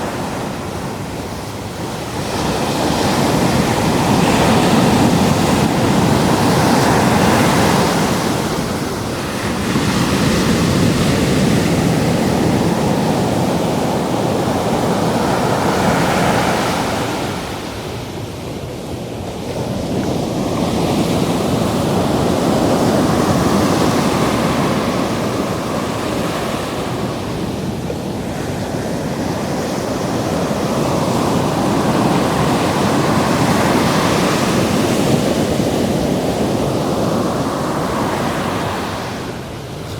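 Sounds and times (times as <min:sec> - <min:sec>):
ocean surf washing: 0:00.0 - 0:39.9
wind on microphone: 0:00.0 - 0:39.9.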